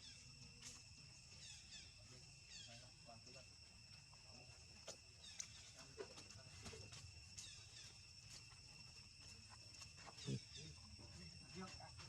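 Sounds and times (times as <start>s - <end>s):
insects droning: 0.0s - 12.0s
soft clicks and chirps: 4.9s - 5.8s.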